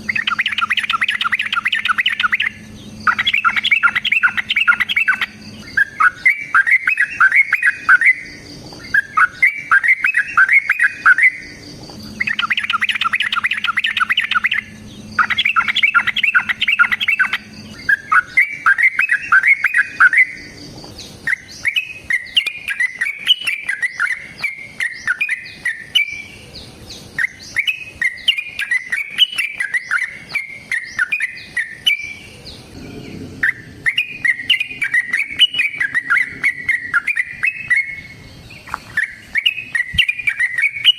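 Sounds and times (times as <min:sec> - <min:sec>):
bulbul chattering song: 0:00.0 - 0:40.9.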